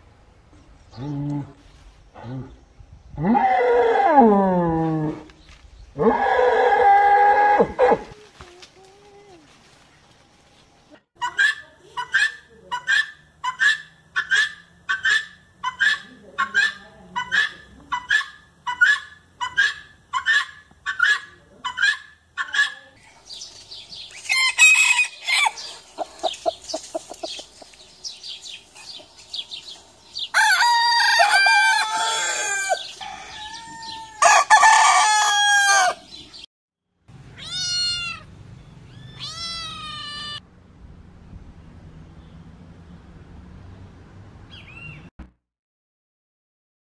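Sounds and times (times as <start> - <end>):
guinea fowl harsh calls: 11.2 - 22.9
rooster crowing: 24.2 - 25.8, 30.2 - 36.2
cat meowing: 37.3 - 38.3, 38.9 - 40.4.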